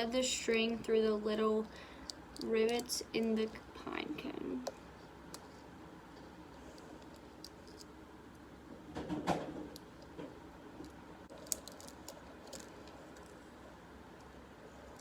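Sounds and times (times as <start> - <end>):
pine cone scratching and clicking: 11.3 - 13.4.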